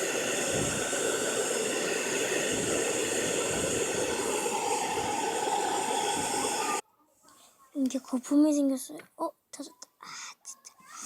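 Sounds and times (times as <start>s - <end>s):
hair dryer blowing: 0.0s - 6.8s.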